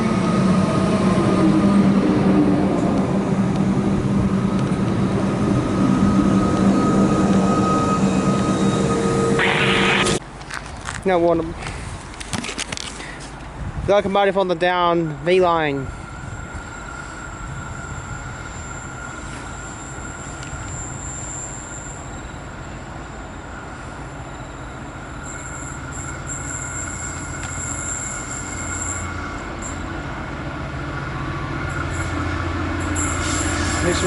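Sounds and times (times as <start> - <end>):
train rumble on rails: 0.0 - 34.0
wheels squealing: 15.9 - 30.2, 31.2 - 34.0.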